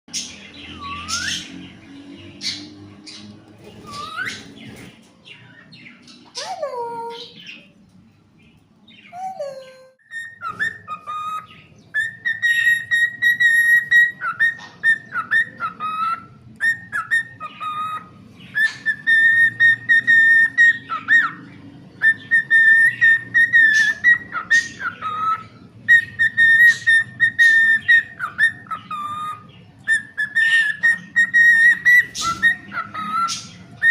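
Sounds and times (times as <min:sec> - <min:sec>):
cockatiel whistling: 0:00.2 - 0:01.6, 0:03.8 - 0:04.8, 0:09.1 - 0:33.9
cockatiel chirps: 0:09.1 - 0:21.4, 0:22.0 - 0:33.9.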